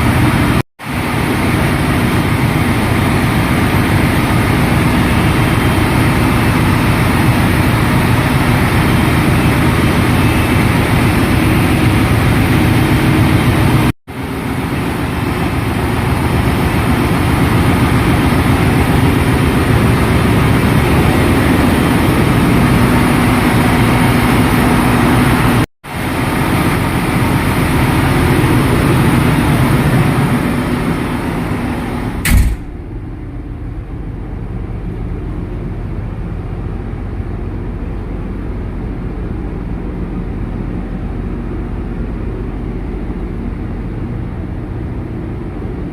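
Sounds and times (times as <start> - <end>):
engine room machinery drone: 0.0 - 45.9
sharp click: 32.2 - 32.9.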